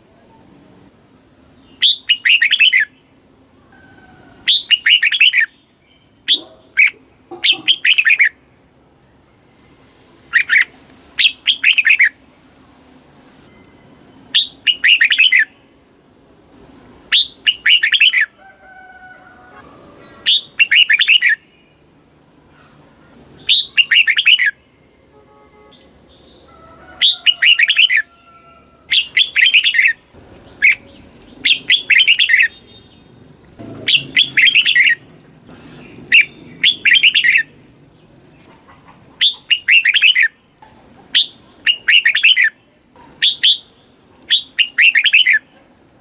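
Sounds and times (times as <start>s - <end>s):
bulbul singing warbled phrases: 1.7s - 3.1s, 4.5s - 8.4s, 13.8s - 15.7s, 17.1s - 18.4s, 20.0s - 24.8s, 28.9s - 38.5s, 39.2s - 40.4s, 41.1s - 45.6s.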